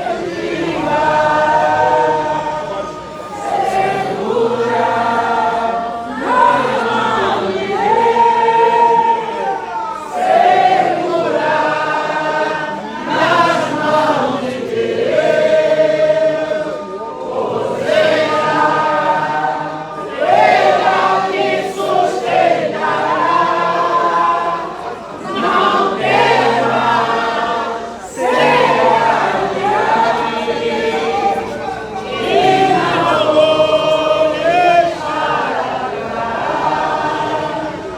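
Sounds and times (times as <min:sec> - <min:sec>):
choir singing: 0:00.0 - 0:37.9.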